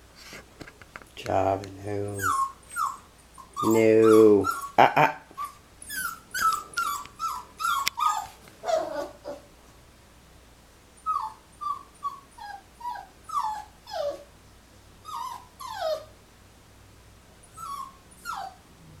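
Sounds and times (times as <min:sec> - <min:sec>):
puppy whining: 0:02.1 - 0:09.5, 0:11.0 - 0:14.3, 0:15.0 - 0:16.2, 0:17.4 - 0:19.0.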